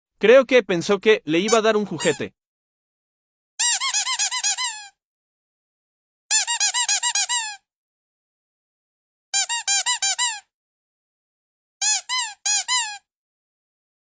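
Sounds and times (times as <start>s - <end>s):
squeaky dog toy squeaking: 1.4s - 2.3s, 3.6s - 5.0s, 6.3s - 7.6s, 9.4s - 10.5s, 11.8s - 13.1s.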